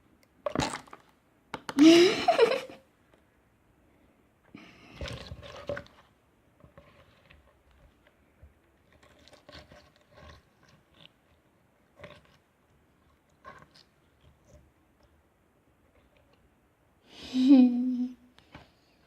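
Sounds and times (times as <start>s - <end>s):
slime squelching: 8.7s - 15.2s.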